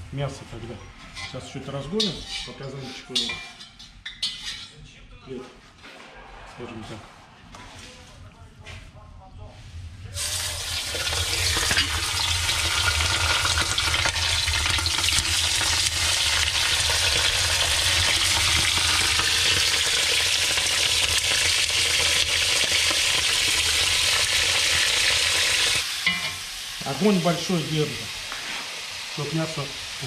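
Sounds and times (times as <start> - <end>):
meat sizzling in hot oil: 10.2 - 30.0.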